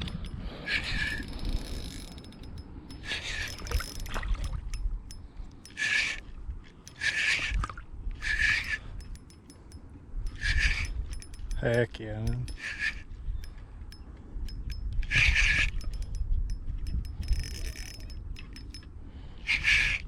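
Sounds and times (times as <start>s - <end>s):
fishing reel buzzing: 0.0s - 6.3s, 6.9s - 20.0s.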